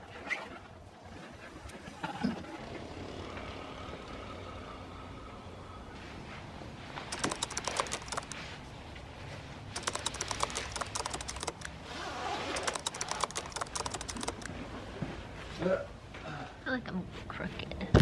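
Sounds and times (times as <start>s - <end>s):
keyboard key clicks: 7.1s - 8.4s, 9.8s - 11.7s, 12.6s - 14.5s.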